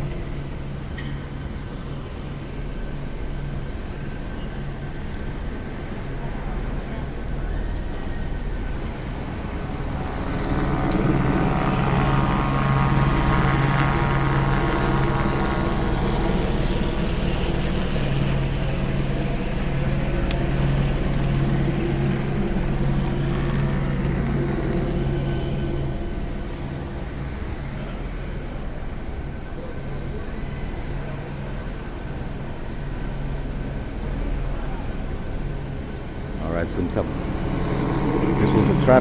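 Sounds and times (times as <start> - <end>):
helicopter rotor and engine drone: 0.0 - 39.0.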